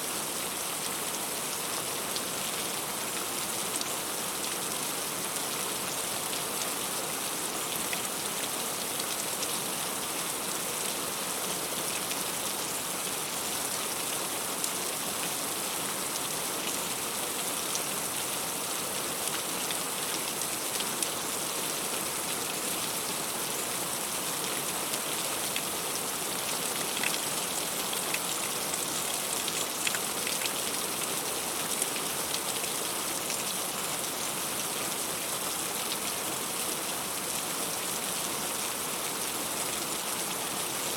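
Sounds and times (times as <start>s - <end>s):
heavy rain: 0.1s - 40.9s.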